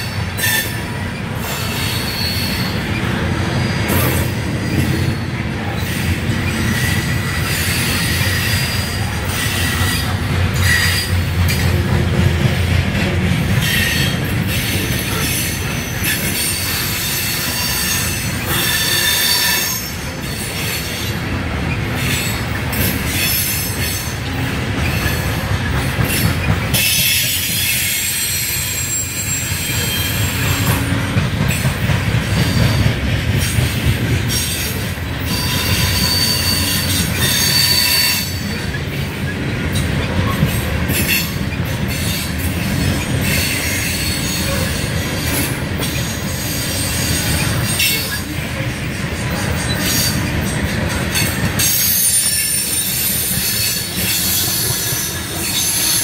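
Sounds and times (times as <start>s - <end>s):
metallic wheel squeals: 0.0s - 11.7s, 13.6s - 25.4s, 26.1s - 30.8s, 34.3s - 39.0s, 49.2s - 56.0s
train wheels rumbling on rail: 0.0s - 56.0s.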